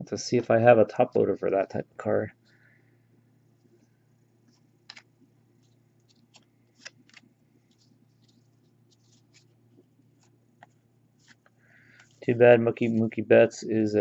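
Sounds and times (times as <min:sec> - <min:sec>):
low steady hum: 0:00.0 - 0:14.0
trading cards clicking and rustling: 0:04.5 - 0:13.1.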